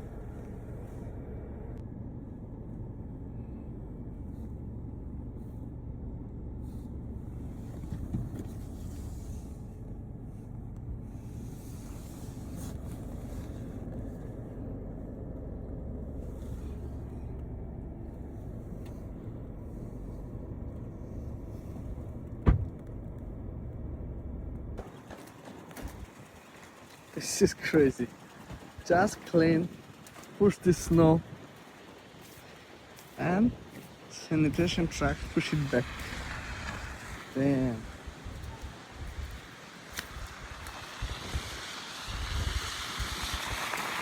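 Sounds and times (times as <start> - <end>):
car engine running: 0.0 - 41.2
sharp thump: 22.4 - 22.8.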